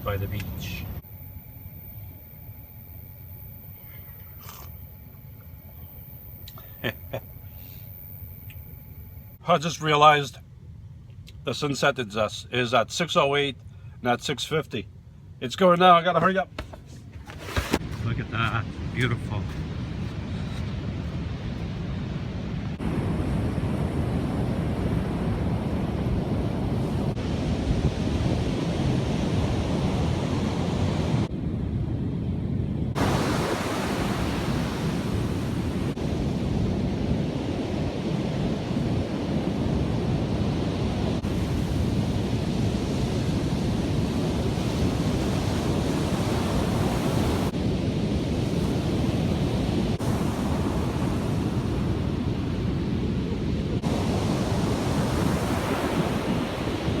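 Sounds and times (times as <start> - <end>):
ocean surf washing in: 17.3 - 31.3, 32.9 - 57.0
wind buffeting microphone: 17.4 - 57.0.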